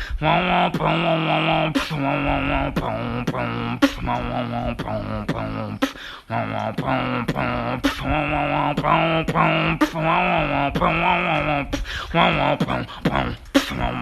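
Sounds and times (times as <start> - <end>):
beatboxing bass and drum clicks: 0.0 - 14.0.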